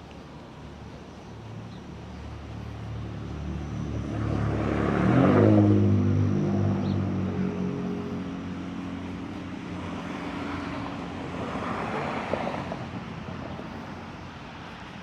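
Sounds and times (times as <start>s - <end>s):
motor vehicle passing: 2.2s - 14.1s.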